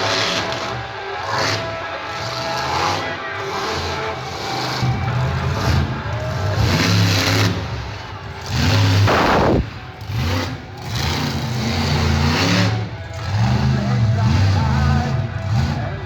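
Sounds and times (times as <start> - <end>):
monster truck engine revving: 0.0 - 16.0
arena music: 9.1 - 10.7.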